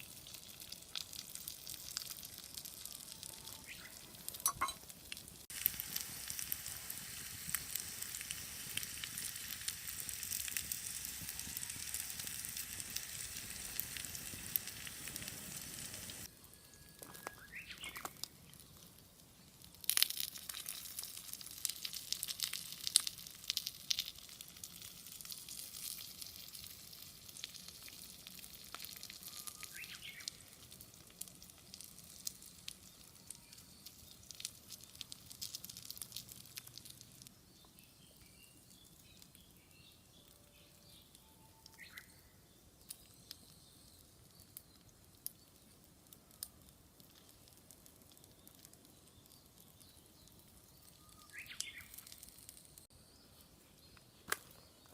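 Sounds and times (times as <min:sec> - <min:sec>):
wood fire crackling and popping: 0:00.0 - 0:16.3, 0:17.0 - 0:37.7, 0:38.6 - 0:52.9, 0:53.8 - 0:54.9
dumplings sizzling in a skillet: 0:00.0 - 0:41.1, 0:42.8 - 0:52.9
bird chirping: 0:03.4 - 0:04.8, 0:16.5 - 0:18.7, 0:29.3 - 0:30.4, 0:48.2 - 0:52.2.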